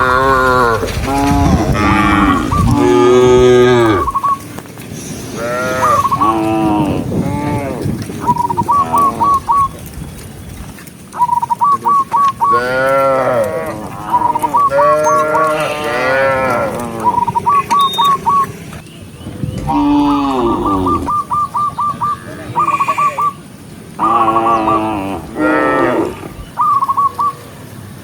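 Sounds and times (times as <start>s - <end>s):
cattle mooing: 0.0s - 4.2s, 5.3s - 9.6s, 12.5s - 18.8s, 19.5s - 21.2s, 24.0s - 26.4s
high chirping notes: 17.0s - 23.4s.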